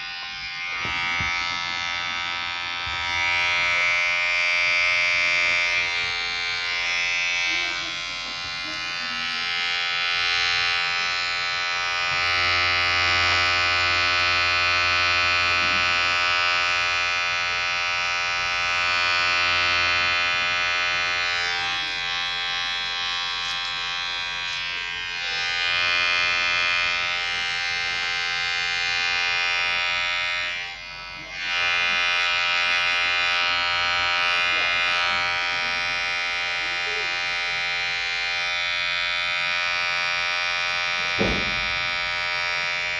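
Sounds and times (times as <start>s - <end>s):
electric hair clipper buzzing: 0.0s - 42.9s.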